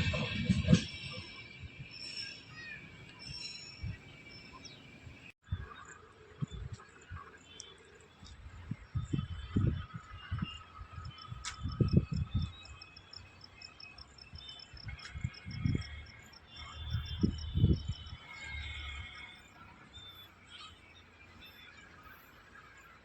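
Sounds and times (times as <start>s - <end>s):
scattered high calls: 0.9s - 5.0s.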